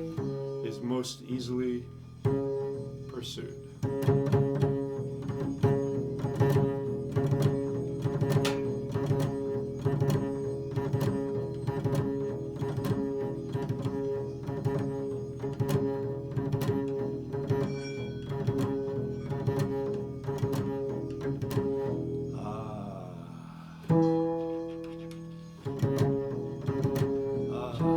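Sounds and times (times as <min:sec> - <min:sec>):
plucked string notes: 0:00.0 - 0:27.9
held drone tone: 0:14.5 - 0:27.9.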